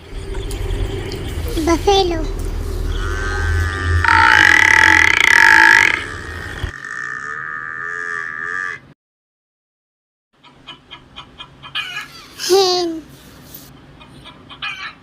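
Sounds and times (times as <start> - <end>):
buffalo bellowing: 2.3 - 8.9
hen clucking: 10.4 - 12.3, 14.0 - 15.0.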